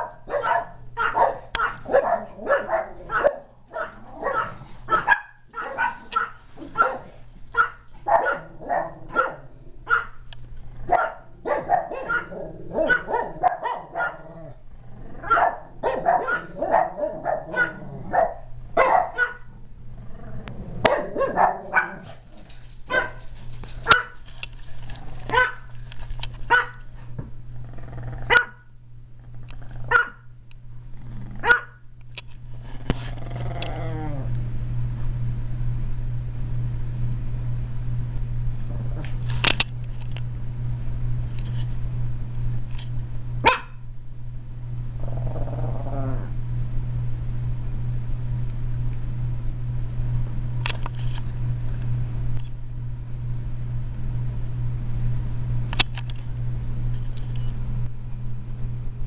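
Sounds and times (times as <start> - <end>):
dogs barking: 0.0 - 10.2, 10.9 - 14.6, 15.2 - 19.5, 20.8 - 22.2, 22.9 - 24.2, 25.3 - 25.7, 26.5 - 26.8, 28.3 - 28.7, 29.9 - 30.3, 31.4 - 31.8, 43.4 - 43.8.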